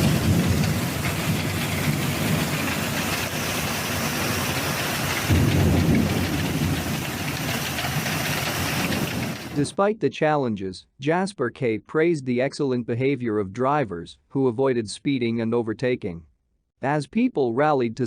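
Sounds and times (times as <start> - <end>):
heavy rain falling: 0.0 - 9.7
thunder rumbling: 0.0 - 9.8.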